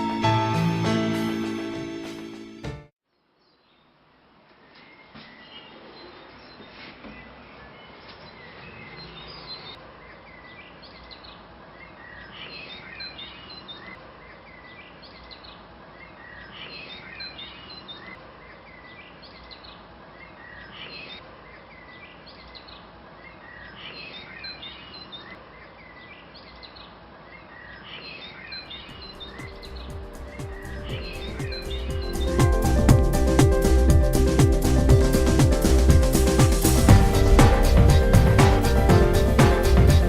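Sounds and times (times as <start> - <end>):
songbird chirping: 3.1 - 33.8.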